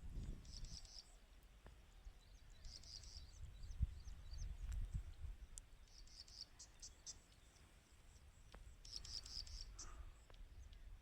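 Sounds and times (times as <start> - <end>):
faint high-pitched chirping: 0.3 - 1.3, 1.9 - 11.0.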